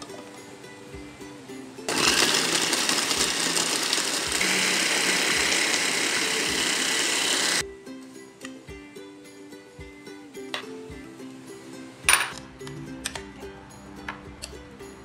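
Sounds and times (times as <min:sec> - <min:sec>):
light ukulele music: 0:00.0 - 0:04.4, 0:07.6 - 0:15.0
electric food chopper running: 0:01.9 - 0:07.6.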